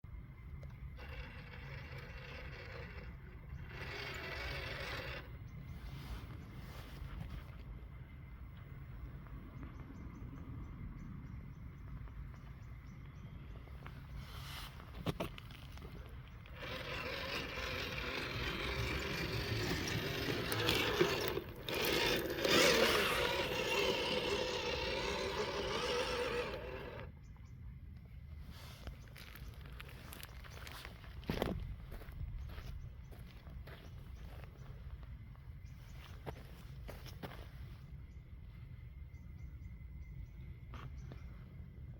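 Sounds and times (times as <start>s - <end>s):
small electric motor whirring: 0.7s - 6.2s, 16.4s - 27.2s.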